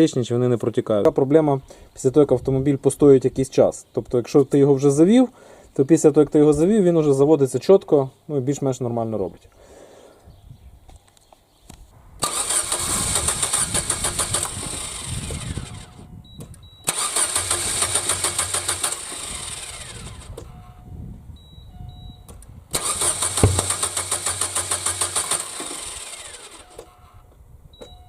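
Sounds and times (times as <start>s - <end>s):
car engine cranking: 12.2s - 15.8s, 16.9s - 20.2s, 22.8s - 26.8s
short electronic beeps: 21.4s - 22.3s.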